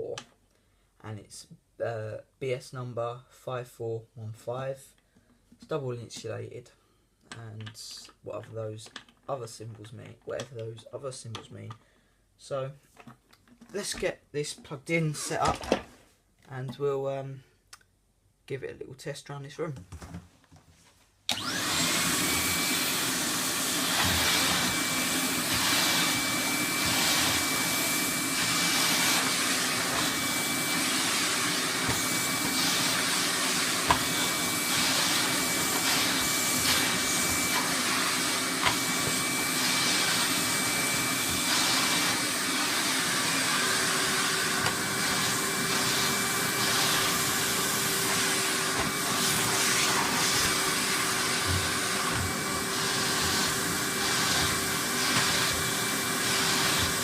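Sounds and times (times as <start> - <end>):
vacuum cleaner running: 21.3 - 57.0.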